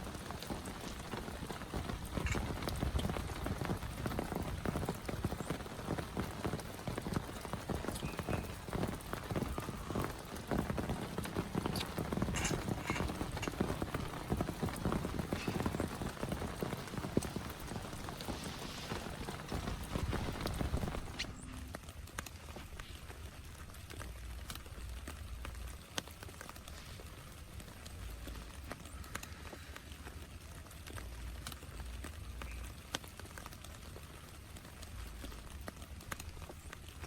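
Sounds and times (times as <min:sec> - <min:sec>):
heavy rain pattering: 0:00.0 - 0:37.0.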